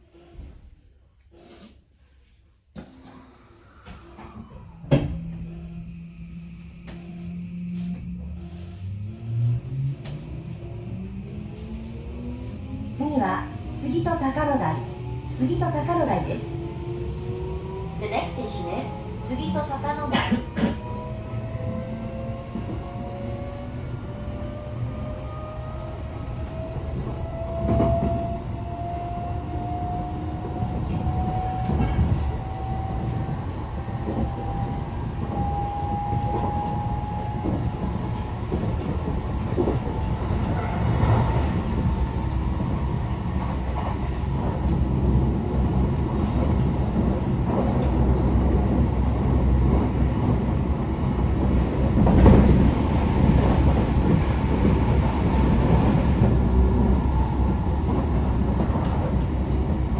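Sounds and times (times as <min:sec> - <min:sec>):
train inverter whine rising: 0:03.6 - 0:20.0.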